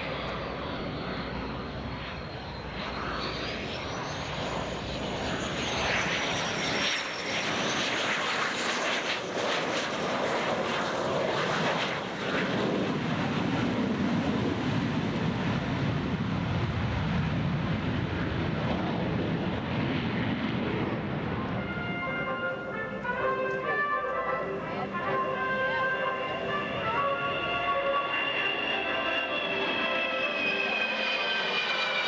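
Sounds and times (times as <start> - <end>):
aircraft engine noise: 0.0 - 32.0
high-pitched whine: 24.5 - 32.0.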